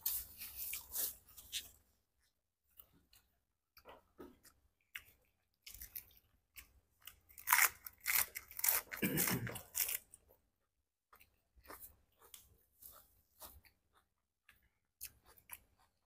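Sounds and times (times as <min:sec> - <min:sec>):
crunchy chewing: 0:02.7 - 0:10.4, 0:11.1 - 0:16.0.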